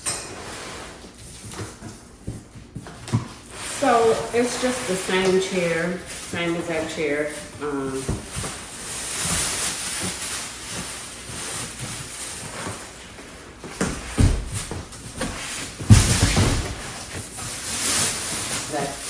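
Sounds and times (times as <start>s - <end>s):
cardboard and plastic rustling: 0.4s - 19.0s
thump: 15.8s - 17.0s.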